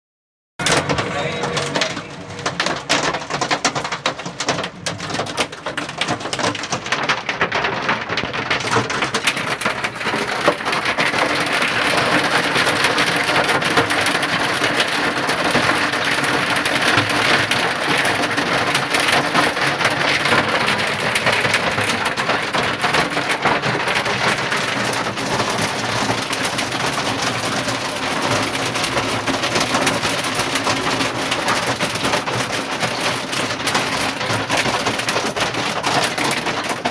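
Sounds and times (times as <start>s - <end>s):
heavy rain pelting down: 0.6s - 36.9s.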